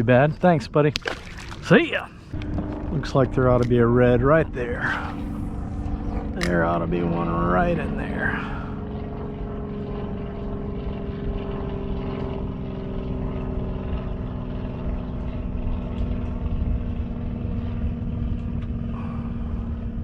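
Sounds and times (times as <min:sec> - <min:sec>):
motor droning: 0:00.0 - 0:20.0.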